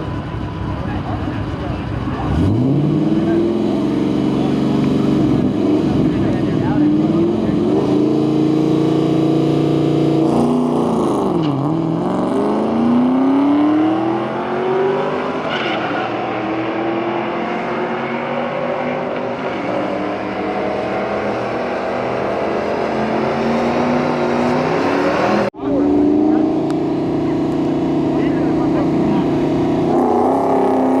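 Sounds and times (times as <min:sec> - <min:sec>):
car engine revving hard: 0:02.1 - 0:31.0.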